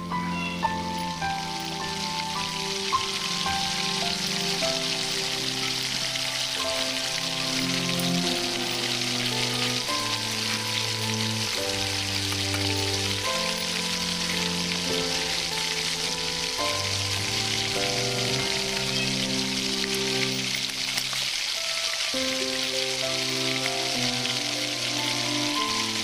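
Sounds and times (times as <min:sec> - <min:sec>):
corn sizzling in hot oil: 0:00.0 - 0:26.0
soft background music: 0:00.0 - 0:26.0.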